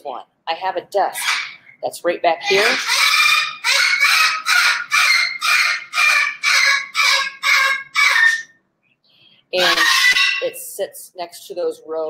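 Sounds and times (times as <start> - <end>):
bird squawking harshly: 1.1 - 1.8, 2.4 - 8.5, 9.6 - 10.6.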